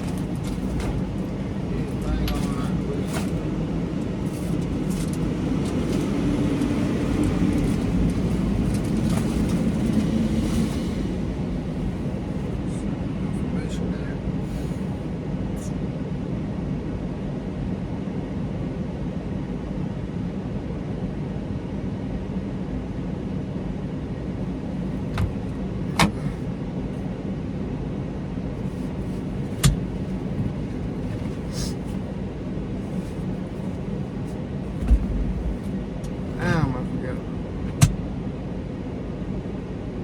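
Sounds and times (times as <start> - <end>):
truck engine running: 0.0 - 15.5, 24.2 - 27.3, 28.4 - 39.6.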